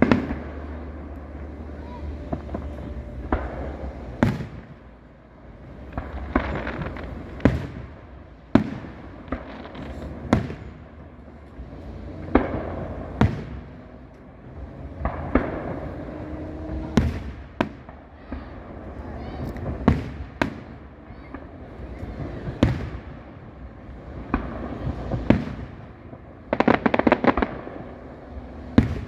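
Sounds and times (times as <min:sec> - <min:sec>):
crackling shower of fireworks: 0:00.0 - 0:29.0
fireworks booming: 0:00.0 - 0:29.0.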